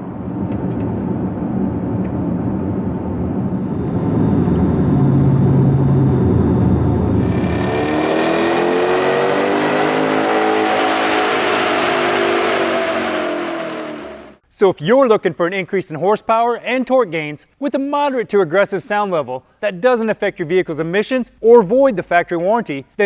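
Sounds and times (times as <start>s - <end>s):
deep rumbling car engine: 4.0s - 14.4s.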